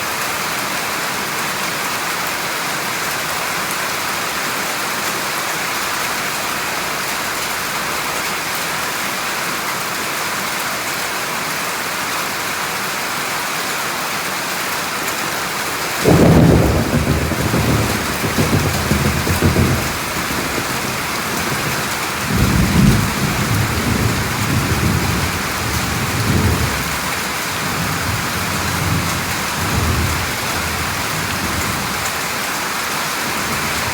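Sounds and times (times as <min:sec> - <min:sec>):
steady rain falling: 0:00.0 - 0:33.9
thunder rumbling: 0:15.7 - 0:32.4, 0:33.3 - 0:33.9.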